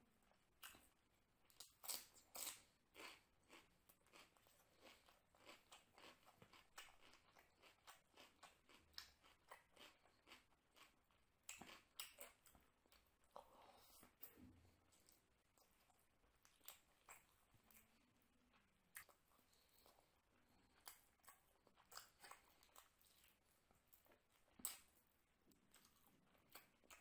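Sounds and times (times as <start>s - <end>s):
crunchy chewing of cucumber: 1.5s - 14.4s.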